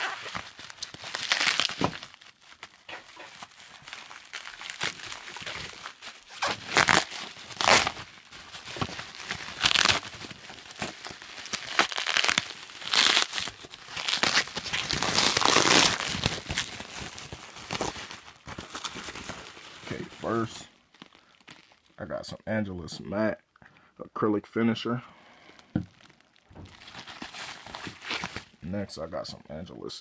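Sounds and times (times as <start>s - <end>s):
packaging crumpling and tearing: 0.0s - 22.0s, 25.4s - 28.6s.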